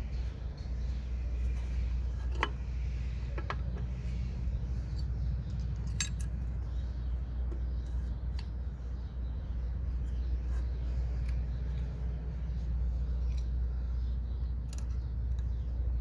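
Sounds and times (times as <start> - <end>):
steady low hum: 0.0 - 16.0
metallic clinks of hand tools: 4.9 - 6.6.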